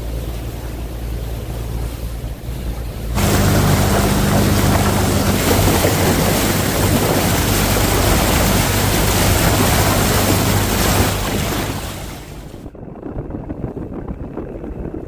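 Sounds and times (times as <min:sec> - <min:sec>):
boat engine humming: 0:00.0 - 0:12.7
water noise: 0:00.0 - 0:12.7
strong wind: 0:01.7 - 0:15.0.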